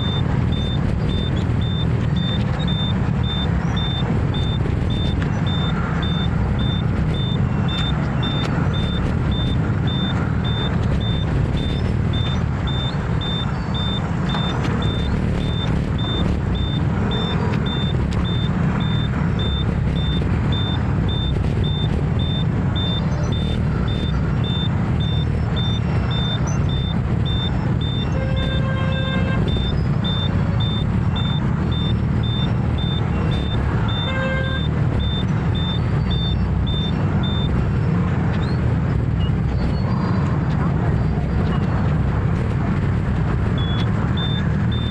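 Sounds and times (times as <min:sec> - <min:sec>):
high electronic beep: 0:00.0 - 0:37.8, 0:43.6 - 0:44.9
scooter engine and road noise: 0:00.0 - 0:44.9
horn honking: 0:27.8 - 0:30.2, 0:33.8 - 0:34.8.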